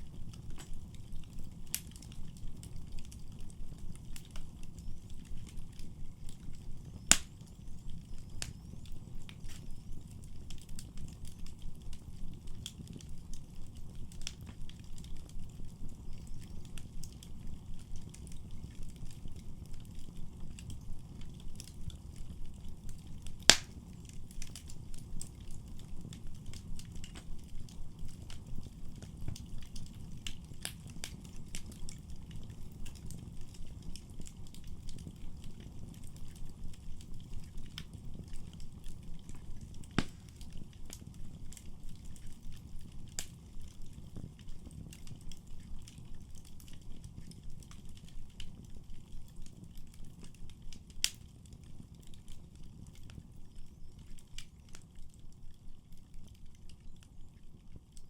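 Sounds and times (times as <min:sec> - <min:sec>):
flames rumbling: 0:00.0 - 0:58.0
wood fire crackling: 0:00.0 - 0:58.0.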